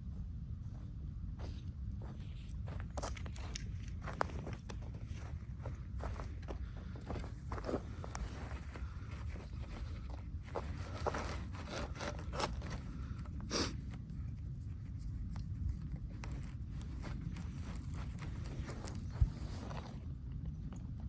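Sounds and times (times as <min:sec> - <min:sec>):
steady low rumble: 0:00.0 - 0:21.0
rasping scrape: 0:10.6 - 0:13.7.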